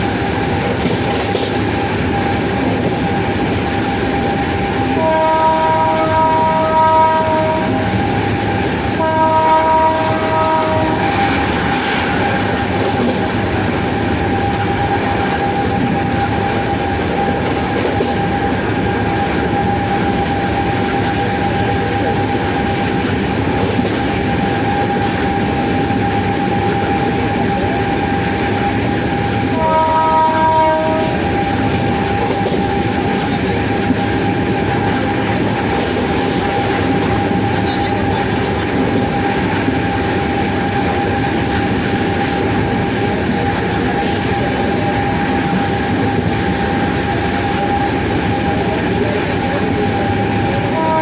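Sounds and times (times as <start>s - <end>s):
electric locomotive motor whine: 0.0s - 51.0s
train rumbling in motion: 0.0s - 51.0s
train horn blasts: 4.8s - 8.2s, 8.8s - 16.8s, 29.4s - 35.0s, 50.2s - 51.0s.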